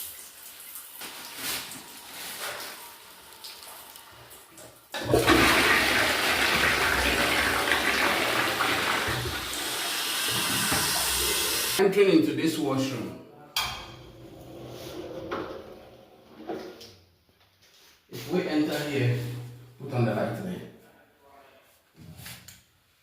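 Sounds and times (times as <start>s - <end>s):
toilet flushing: 0.0s - 11.8s.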